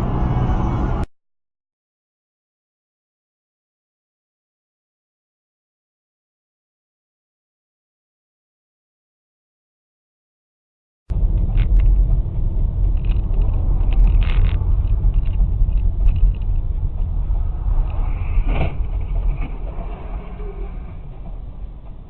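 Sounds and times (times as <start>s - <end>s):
car engine and road noise: 0.0s - 1.1s, 11.1s - 22.0s.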